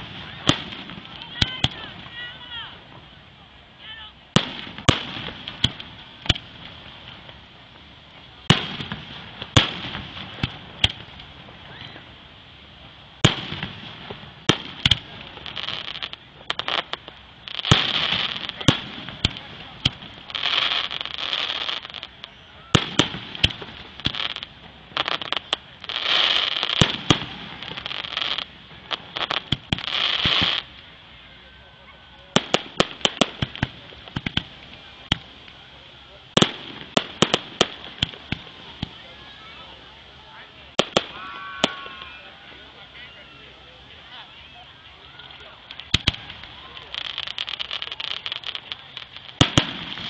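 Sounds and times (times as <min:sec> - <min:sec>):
fireworks bangs: 0:00.0 - 0:31.0, 0:31.9 - 0:44.1, 0:45.0 - 0:50.0
fireworks crackling: 0:00.0 - 0:50.0
crackle of small pops: 0:04.4 - 0:07.4, 0:08.4 - 0:11.4, 0:32.4 - 0:35.6, 0:45.2 - 0:50.0.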